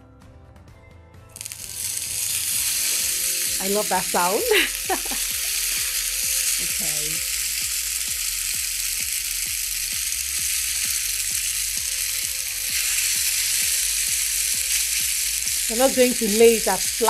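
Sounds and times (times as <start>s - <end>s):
music with steady beat: 0.5s - 17.0s
spaghetti sizzling in frying pan: 1.4s - 17.0s.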